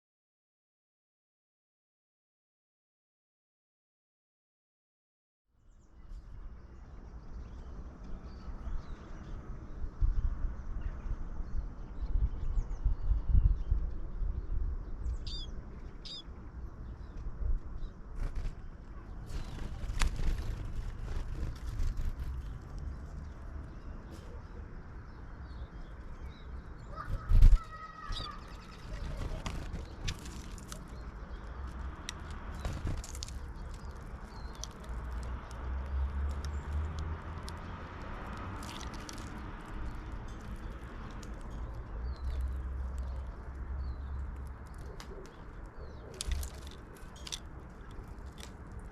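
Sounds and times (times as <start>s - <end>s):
small birds chirping: 5.6s - 48.9s
clear bird calls: 15.0s - 17.2s, 17.8s - 36.7s.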